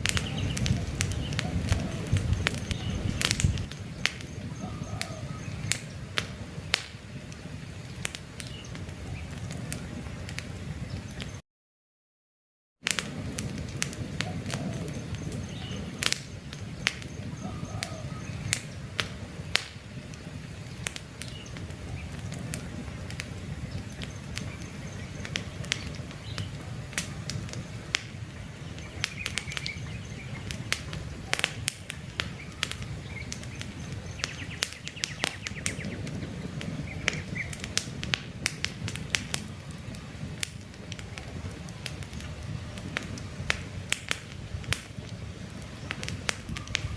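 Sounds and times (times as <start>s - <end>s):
campfire crackling and popping: 0.0s - 11.4s, 12.8s - 46.9s
faint birds chirping: 0.0s - 11.4s, 14.0s - 37.8s
fire low rumble: 0.0s - 11.4s, 12.8s - 46.9s.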